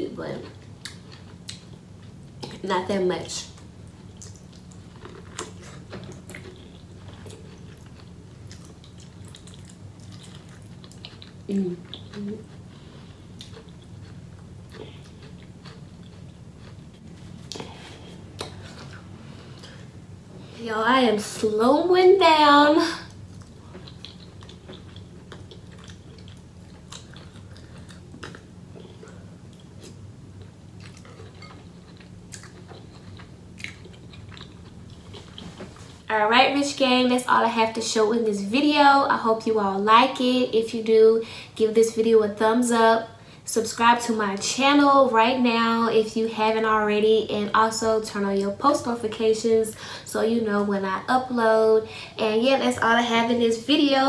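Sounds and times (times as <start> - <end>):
faint low hum: 0.0 - 54.0
chewing corn cob: 4.1 - 17.7, 23.2 - 35.7.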